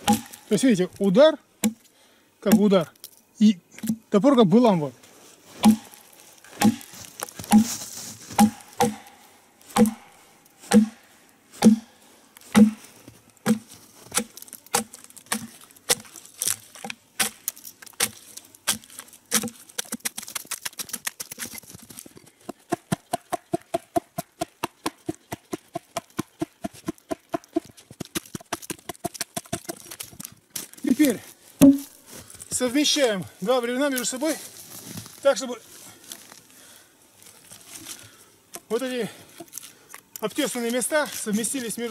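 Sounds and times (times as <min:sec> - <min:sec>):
axe chopping wood: 0:00.0 - 0:00.5, 0:01.6 - 0:01.9, 0:02.5 - 0:02.7, 0:05.6 - 0:11.0, 0:11.6 - 0:11.9, 0:12.5 - 0:21.5, 0:22.4 - 0:30.2, 0:31.6 - 0:32.0.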